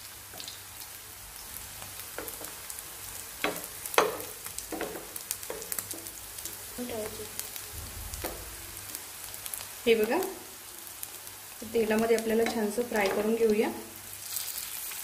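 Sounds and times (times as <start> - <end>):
patties sizzling in oil: 0.0 - 15.0
spatula knocking on pan: 2.1 - 2.6, 3.4 - 6.2, 12.2 - 13.4.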